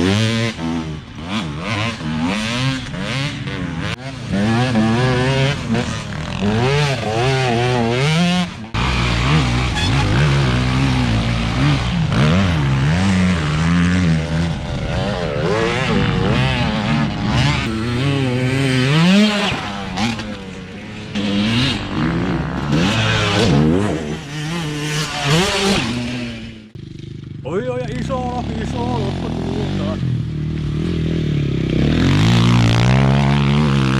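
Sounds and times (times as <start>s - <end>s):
dirt bike engine revving: 0.0s - 33.9s.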